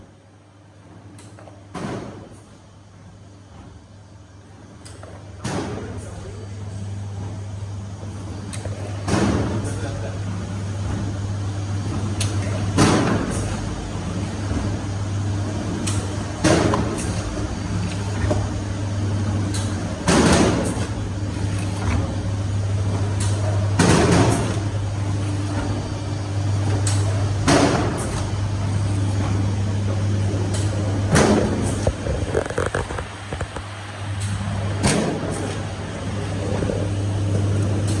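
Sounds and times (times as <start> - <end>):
machine motor hum: 0.0 - 38.0
hissing rush and clatter: 30.5 - 34.2.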